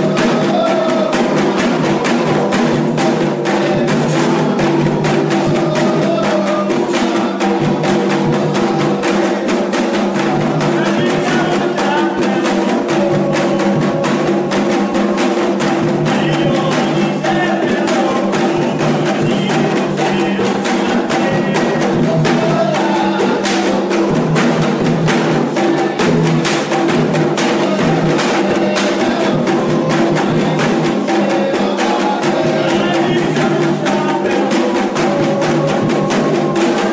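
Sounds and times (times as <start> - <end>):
hand drums beating fast rhythm: 0.0 - 36.9.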